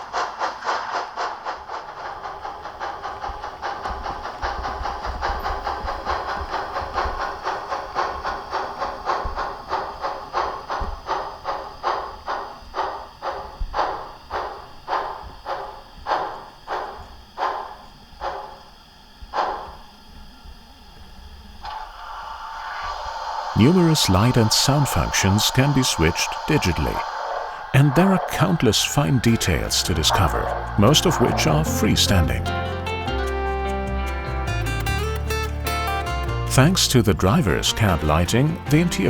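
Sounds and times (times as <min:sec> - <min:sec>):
model steam locomotive chuffing: 0:00.0 - 0:39.0.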